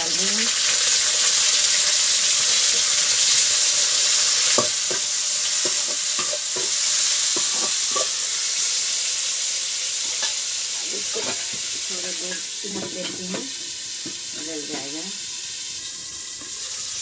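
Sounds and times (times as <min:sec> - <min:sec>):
tomatoes sizzling in hot oil: 0:00.0 - 0:17.0
metal spatula scraping pan: 0:04.6 - 0:08.2.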